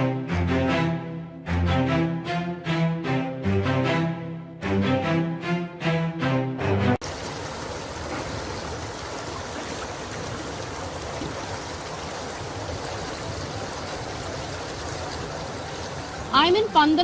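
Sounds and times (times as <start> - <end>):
flowing floodwater: 7.0 - 17.0.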